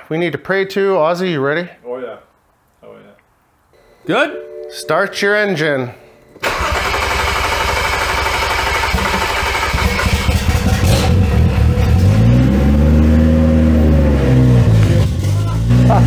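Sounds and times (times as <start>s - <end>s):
engine cranking on starter: 6.4s - 12.1s
car engine starting and revving: 6.4s - 16.0s.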